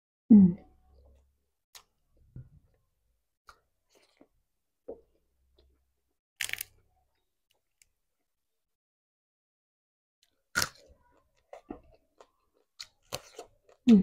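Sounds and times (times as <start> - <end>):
food crunching: 10.2 - 13.9
person chewing: 10.5 - 14.0.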